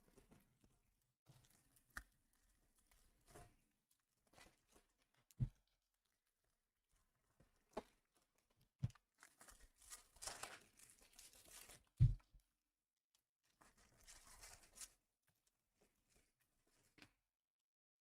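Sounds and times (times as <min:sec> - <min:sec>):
foil card pack tearing and crinkling: 0:09.2 - 0:11.8
soft thumps on table: 0:12.0 - 0:12.2.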